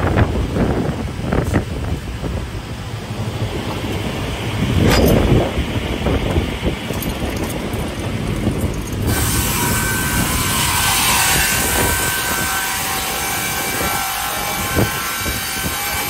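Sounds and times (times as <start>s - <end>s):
saw blades cutting timber: 9.0s - 16.0s.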